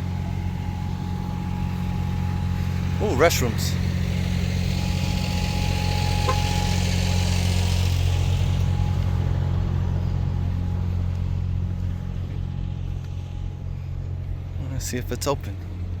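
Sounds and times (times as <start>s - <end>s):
car cabin rumble: 0.0s - 6.7s.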